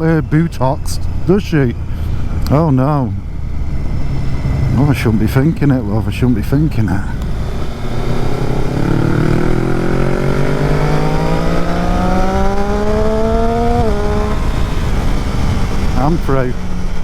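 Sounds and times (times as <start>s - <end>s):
motorcycle engine accelerating: 0.0s - 17.0s
wind rush on microphone: 7.1s - 17.0s.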